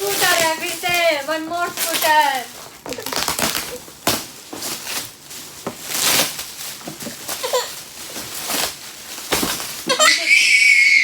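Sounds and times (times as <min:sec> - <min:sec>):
packaging rustling and crinkling: 0:00.0 - 0:10.6.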